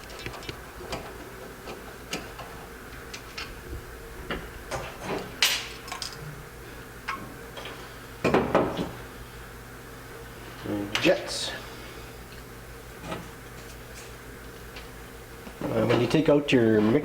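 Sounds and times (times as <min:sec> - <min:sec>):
small metal parts clinking: 0:05.4 - 0:06.2.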